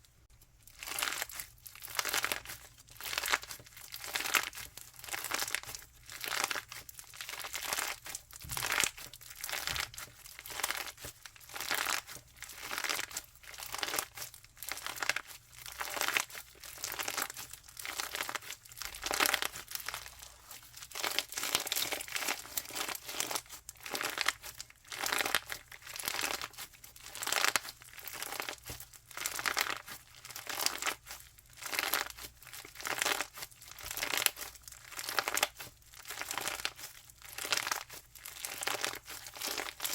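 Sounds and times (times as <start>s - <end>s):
crunchy slime squeezed by hand: 0.7s - 39.9s.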